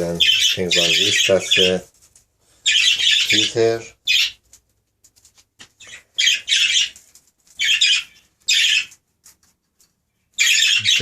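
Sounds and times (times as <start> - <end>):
budgerigars squawking: 0.2 - 1.8, 2.6 - 4.4, 5.8 - 7.0, 7.6 - 8.9, 10.4 - 11.0.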